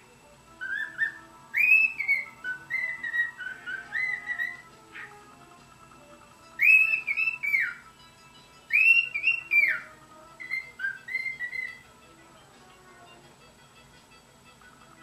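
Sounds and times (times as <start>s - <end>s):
cockatiel whistling song: 0.5s - 11.9s.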